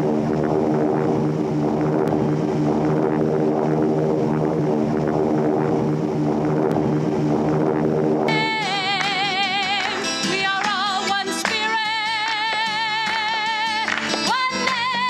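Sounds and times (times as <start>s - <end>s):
airliner engines droning: 0.0s - 11.2s.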